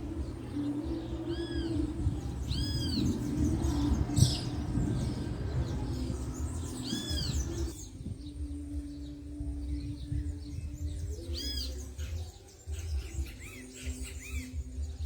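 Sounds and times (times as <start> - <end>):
low steady hum: 0.0 - 11.4
songbird calling: 0.0 - 15.0.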